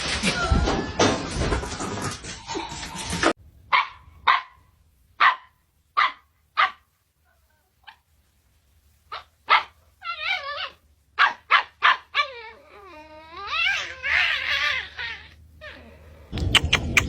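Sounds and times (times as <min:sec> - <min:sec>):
dog barking: 0:03.7 - 0:06.9, 0:09.1 - 0:09.8, 0:11.2 - 0:12.1
dog wavering cry: 0:09.5 - 0:16.0.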